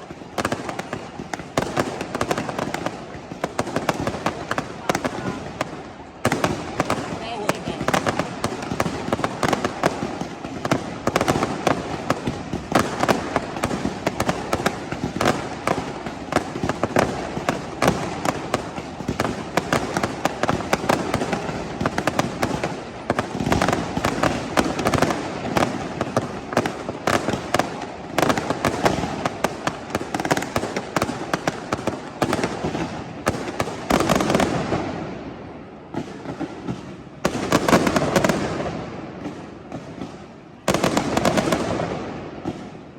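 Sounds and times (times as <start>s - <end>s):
fireworks bangs and cracks: 0.0s - 42.9s.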